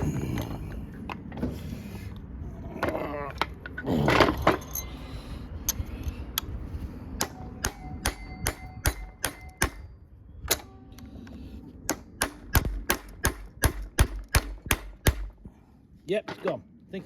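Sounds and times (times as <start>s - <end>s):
hammer tapping metal punch: 7.2s - 9.9s.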